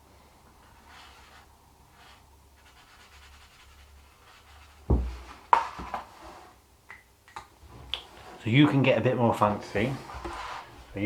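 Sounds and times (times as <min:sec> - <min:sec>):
thump on tabletop: 0:04.9 - 0:06.0.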